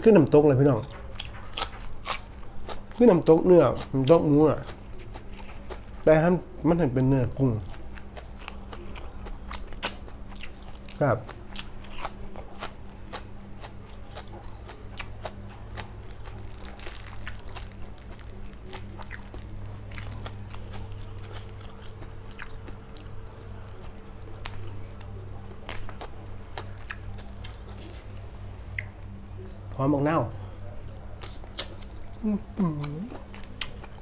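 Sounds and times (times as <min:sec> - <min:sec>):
steady low hum: 0:00.0 - 0:34.0
person chewing and crunching: 0:00.7 - 0:06.1, 0:07.3 - 0:29.2, 0:30.8 - 0:34.0.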